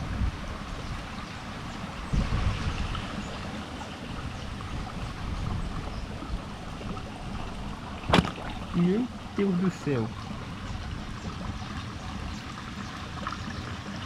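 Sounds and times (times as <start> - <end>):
wind buffeting microphone: 0.0 - 9.4
rushing water: 0.0 - 14.0.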